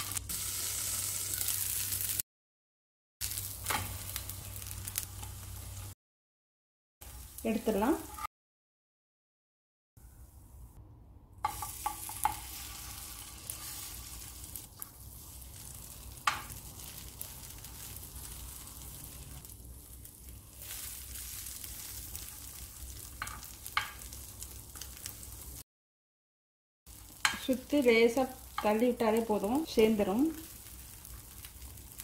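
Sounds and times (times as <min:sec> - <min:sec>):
batter sizzling on hot griddle: 0:00.0 - 0:02.2, 0:03.2 - 0:06.0, 0:11.4 - 0:25.6, 0:26.9 - 0:32.0.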